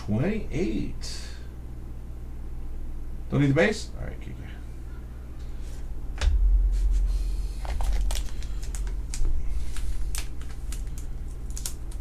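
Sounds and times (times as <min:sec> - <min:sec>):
low rumbling bumps: 0:06.1 - 0:09.7
cards clicking and rustling: 0:07.7 - 0:12.0.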